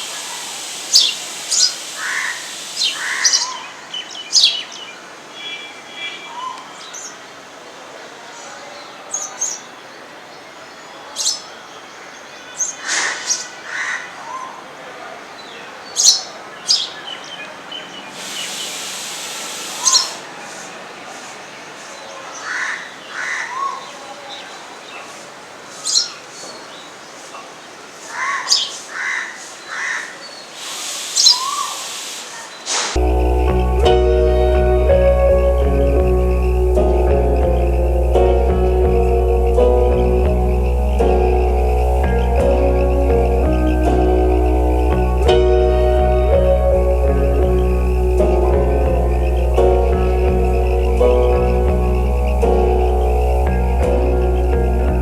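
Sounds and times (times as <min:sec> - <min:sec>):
sparrows chirping: 0:00.0 - 0:07.3, 0:08.4 - 0:14.7, 0:15.3 - 0:55.0
harsh bird calls: 0:00.0 - 0:07.4, 0:08.3 - 0:54.8
music: 0:33.0 - 0:55.0.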